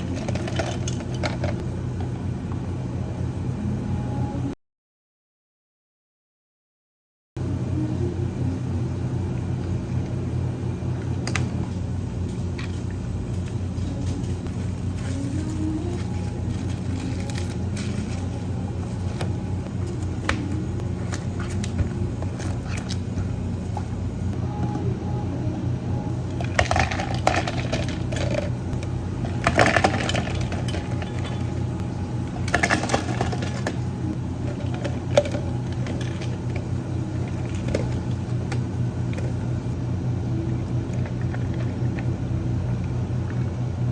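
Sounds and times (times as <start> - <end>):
cups and utensils clinking: 0.0 - 1.6, 29.2 - 31.6
low equipment hum: 0.0 - 4.6, 7.4 - 43.9.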